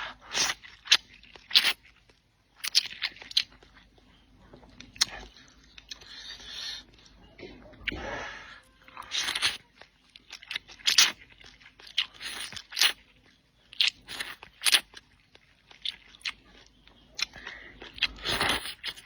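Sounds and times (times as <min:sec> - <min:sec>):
person biting and chewing: 0:00.0 - 0:02.0, 0:02.6 - 0:03.8, 0:04.9 - 0:06.8, 0:09.0 - 0:09.6, 0:10.2 - 0:13.0, 0:13.7 - 0:16.4, 0:17.2 - 0:19.0.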